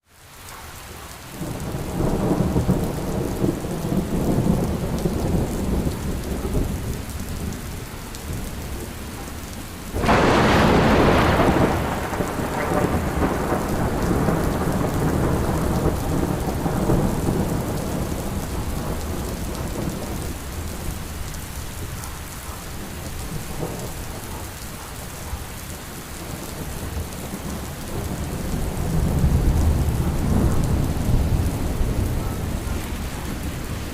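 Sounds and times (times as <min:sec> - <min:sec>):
steady rain: 0:00.0 - 0:33.9
thunder rumbling: 0:01.3 - 0:33.9
loud thunderclap: 0:01.4 - 0:07.6, 0:10.0 - 0:21.0, 0:26.3 - 0:33.9.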